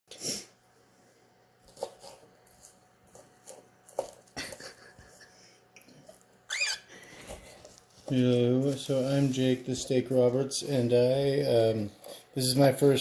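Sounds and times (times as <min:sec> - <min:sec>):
cockatiel chirp: 0:06.5 - 0:06.9.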